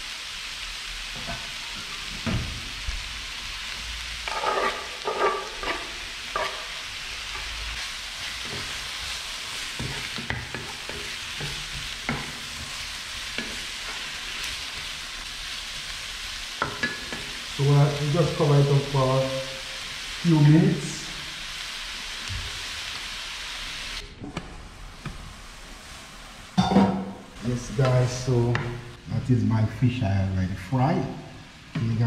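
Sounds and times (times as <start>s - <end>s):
vegetables sizzling in oil: 0.0s - 29.2s
spatula scraping and knocking pan: 4.2s - 7.5s, 9.6s - 14.9s.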